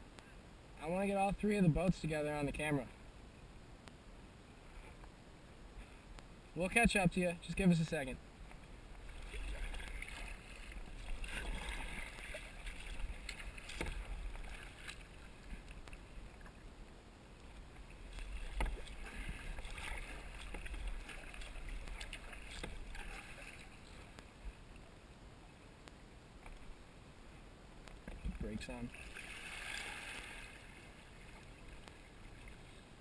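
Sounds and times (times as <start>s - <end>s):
paddle splashing in water: 8.6s - 16.6s, 17.5s - 24.2s, 28.2s - 32.8s.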